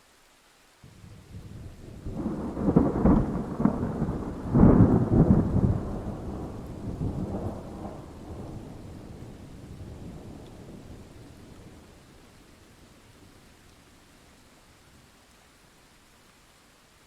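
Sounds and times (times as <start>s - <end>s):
rain: 0.0s - 17.0s
thunder clap and rumble: 1.3s - 11.9s.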